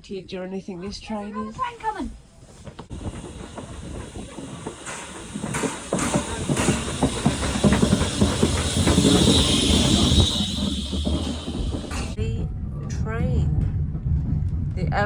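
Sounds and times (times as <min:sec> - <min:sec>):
steam locomotive rumbling and knocking: 0:02.6 - 0:12.3
steam hissing: 0:02.9 - 0:12.2.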